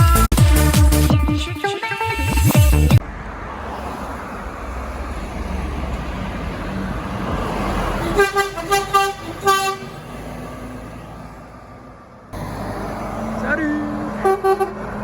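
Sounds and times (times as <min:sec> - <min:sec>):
truck engine and road noise: 0:00.0 - 0:15.0
air horn blasts: 0:08.0 - 0:10.0, 0:14.2 - 0:14.8.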